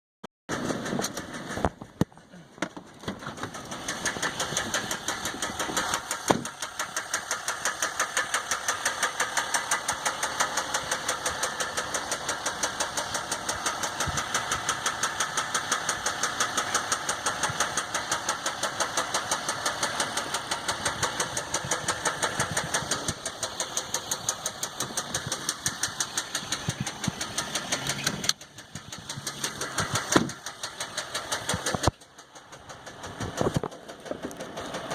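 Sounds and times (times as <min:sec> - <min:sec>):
diesel engine knocking: 0:00.5 - 0:34.9.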